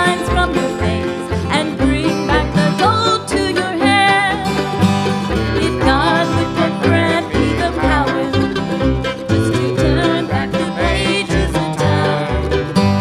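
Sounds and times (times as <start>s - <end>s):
bluegrass band playing live: 0.0s - 13.0s.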